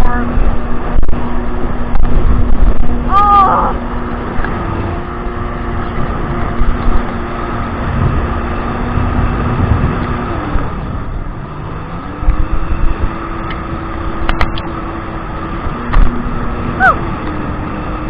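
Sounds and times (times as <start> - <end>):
jet ski engine running: 0.0 - 18.0
rushing water: 0.0 - 18.0
wind noise: 0.0 - 18.0.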